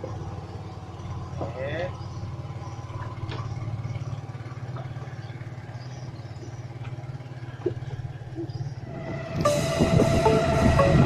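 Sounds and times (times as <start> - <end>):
small engine droning: 0.0 - 11.0.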